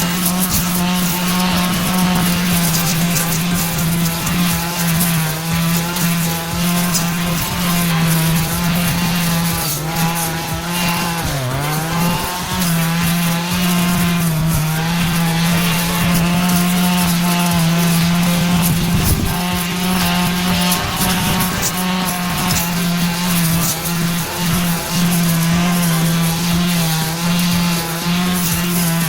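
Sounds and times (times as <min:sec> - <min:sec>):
brush cutter engine running: 0:00.0 - 0:29.0.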